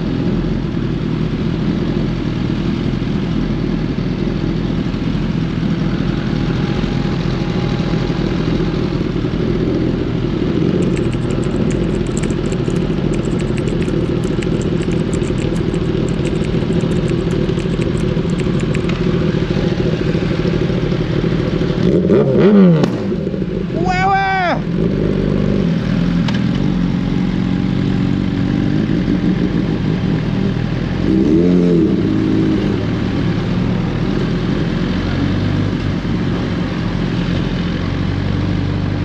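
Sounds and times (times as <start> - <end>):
motorcycle engine running steadily: 0.0 - 39.0
fast light ticks: 10.7 - 19.4.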